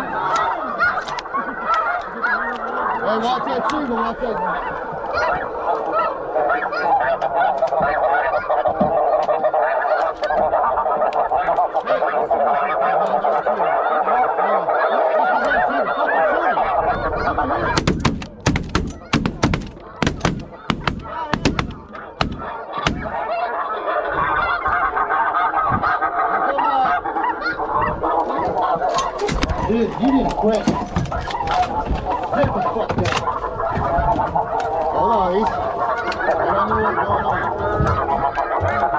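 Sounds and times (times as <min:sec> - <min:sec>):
geese honking: 0:00.0 - 0:38.9
shotgun shots: 0:17.8 - 0:23.2.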